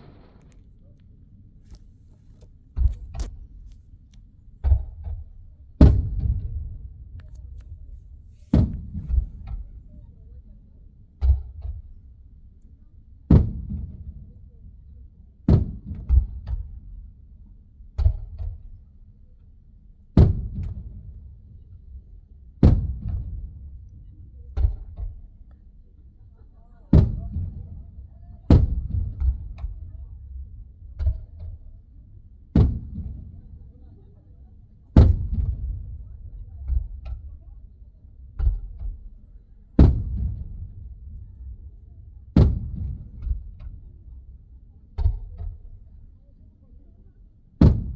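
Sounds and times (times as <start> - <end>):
fireworks booming and cracking: 0.0 - 0.7
muffled fireworks booms: 0.0 - 0.8, 4.6 - 10.1, 27.0 - 30.0, 32.6 - 33.8, 35.0 - 37.4, 39.8 - 45.8, 47.6 - 47.9.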